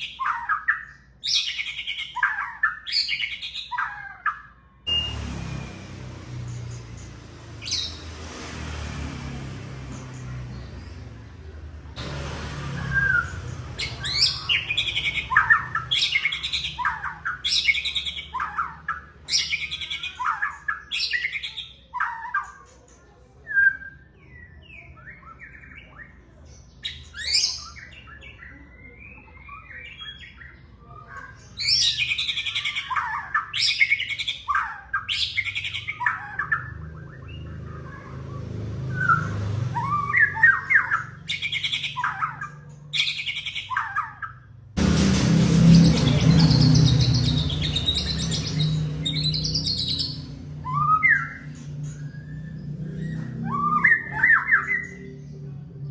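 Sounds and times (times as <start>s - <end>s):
bird singing whistled phrases: 46.2s - 55.1s.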